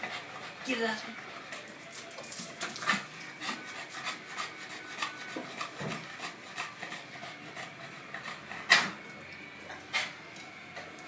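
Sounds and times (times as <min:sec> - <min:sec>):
dog panting: 0:00.0 - 0:01.8, 0:02.6 - 0:11.0
dog paws scraping and knocking: 0:05.1 - 0:06.8.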